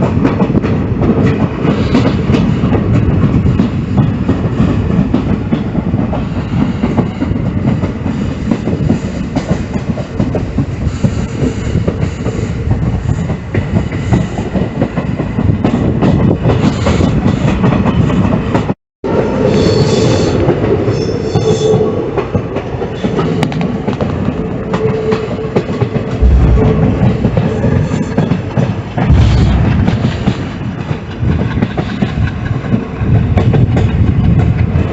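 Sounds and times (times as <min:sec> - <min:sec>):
train rumble and wheel clatter: 0:00.0 - 0:34.9.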